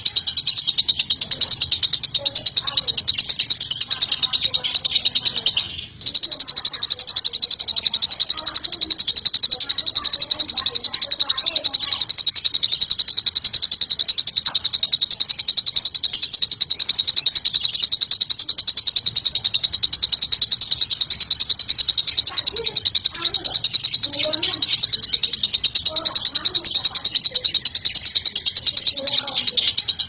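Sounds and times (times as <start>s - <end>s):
bird singing rapid trill: 0.0s - 30.0s
faint high chirps: 0.0s - 30.0s.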